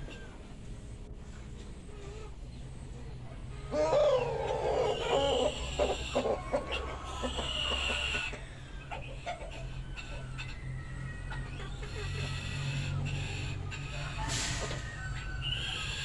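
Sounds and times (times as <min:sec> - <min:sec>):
chickens calling: 0:00.0 - 0:16.0.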